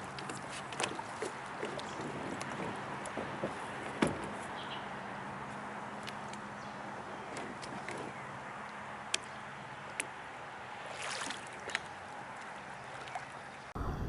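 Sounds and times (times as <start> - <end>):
water against kayak hull: 0.0 - 14.0
short rush of water: 10.8 - 13.8.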